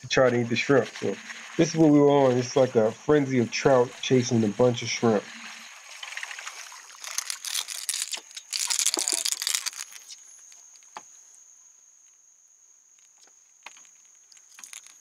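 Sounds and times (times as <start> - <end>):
water splashing: 0.1 - 10.1.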